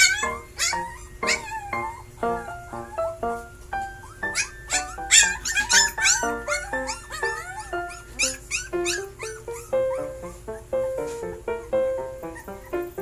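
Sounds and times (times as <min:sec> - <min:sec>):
puppies yipping and whimpering: 0:00.0 - 0:11.4, 0:12.0 - 0:13.0
background music plinking notes: 0:00.2 - 0:13.0.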